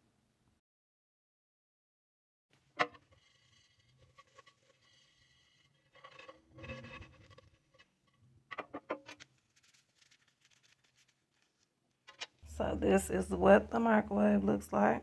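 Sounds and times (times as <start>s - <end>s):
soft rustle: 3.1s - 8.2s, 9.0s - 11.8s.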